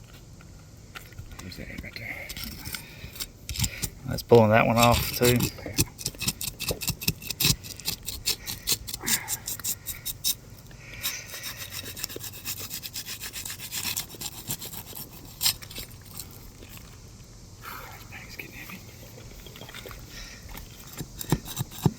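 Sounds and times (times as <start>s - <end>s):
shingles scraping: 2.4s - 10.4s.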